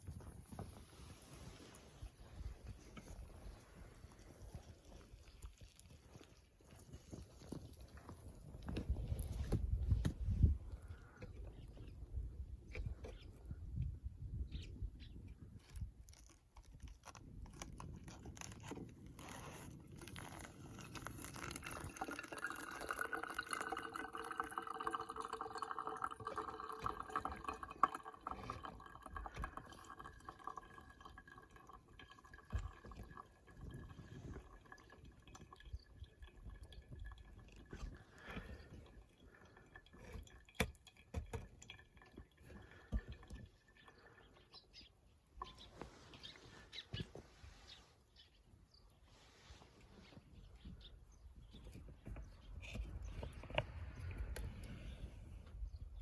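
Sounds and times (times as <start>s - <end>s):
water pouring in a stream: 18.4s - 44.7s
water dripping: 20.9s - 44.8s.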